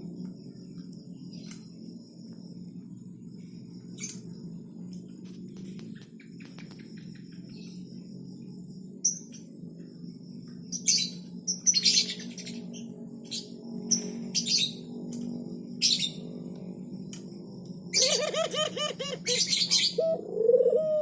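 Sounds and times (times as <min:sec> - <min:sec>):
steady low hum: 0:00.0 - 0:21.0
birds chirping: 0:18.0 - 0:20.2.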